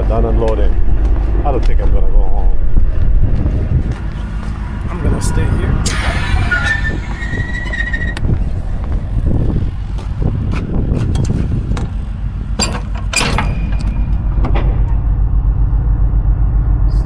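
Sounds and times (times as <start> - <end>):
diesel truck engine idling: 0.0 - 16.6
clicks and knocks: 10.0 - 15.1.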